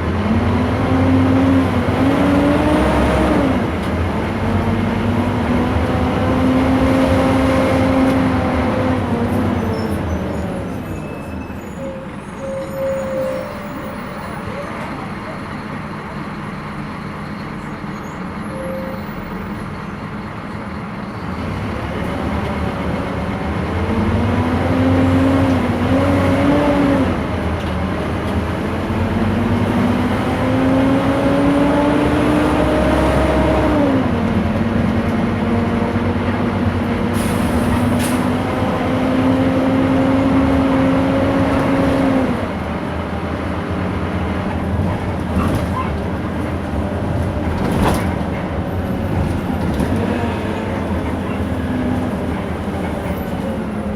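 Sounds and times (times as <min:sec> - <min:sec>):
bus engine whine: 0:00.0 - 0:53.9
air brake hiss: 0:37.1 - 0:38.3.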